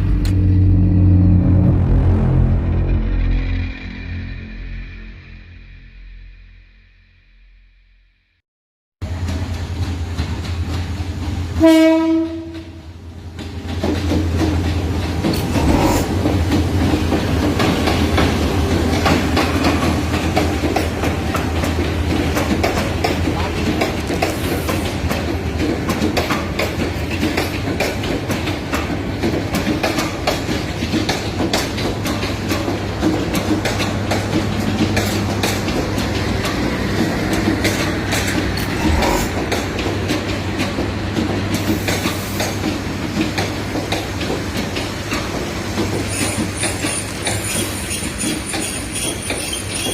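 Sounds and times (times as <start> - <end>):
low hum: 0.0 - 8.4, 38.5 - 39.8
train wheels clattering over rail joints: 9.2 - 49.9
high wheel squeal: 46.1 - 49.9.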